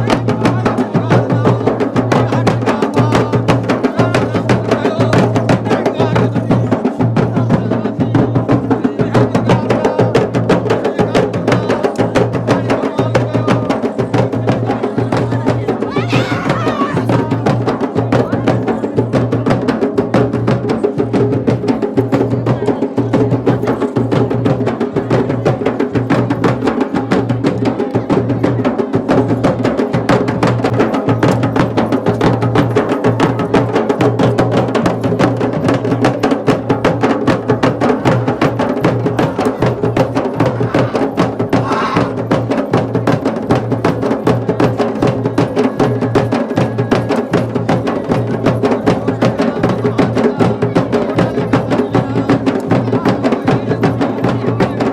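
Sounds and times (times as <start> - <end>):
fast drumming: 0.0 - 54.9.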